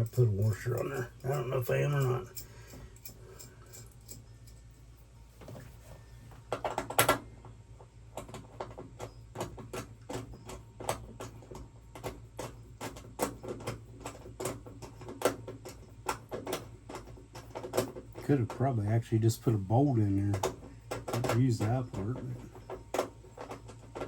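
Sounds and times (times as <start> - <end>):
metal hardware rattle: 0.0 - 4.6, 12.4 - 24.0.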